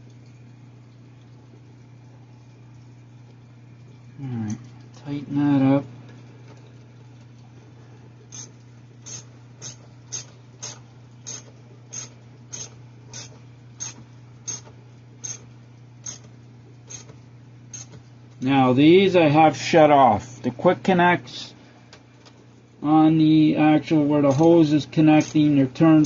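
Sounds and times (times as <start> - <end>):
ratchet clicking: 8.3 - 16.3, 16.9 - 18.0.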